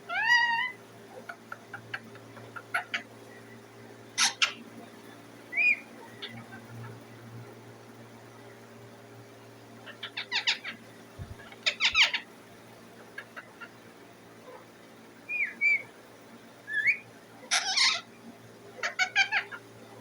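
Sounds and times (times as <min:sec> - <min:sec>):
parrot chirping and whistling: 0:00.1 - 0:00.8, 0:05.5 - 0:06.5, 0:15.3 - 0:15.8, 0:16.7 - 0:18.0.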